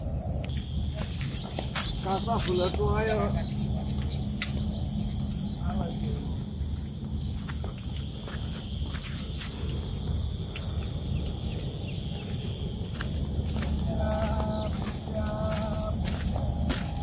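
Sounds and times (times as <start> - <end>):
crickets and insects chirring: 0.0 - 17.0
short animal calls: 13.8 - 16.0.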